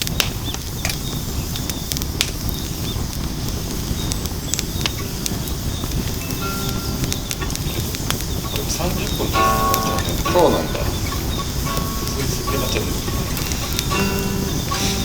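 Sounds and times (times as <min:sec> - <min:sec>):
firewood crackling and popping: 0:00.0 - 0:15.0
low rumble of flame: 0:00.0 - 0:15.0.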